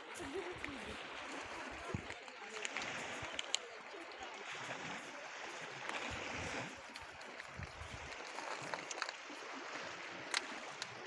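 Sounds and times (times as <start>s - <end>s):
wind on microphone: 0.0s - 2.2s, 4.4s - 10.8s
sea water washing: 0.0s - 11.0s
faint clicks: 0.2s - 4.7s, 10.2s - 11.0s.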